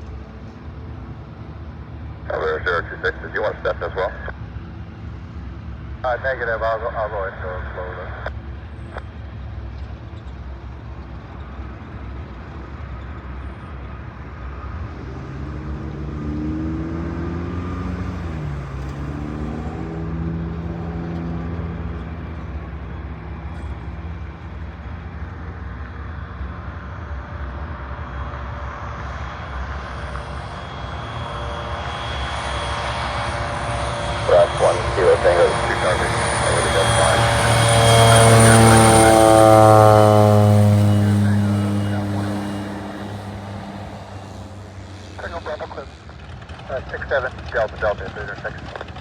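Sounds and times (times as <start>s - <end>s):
passing engine hum: 0.0s - 49.0s
loud engine noise: 0.1s - 49.0s
steady low rumble: 32.6s - 48.9s.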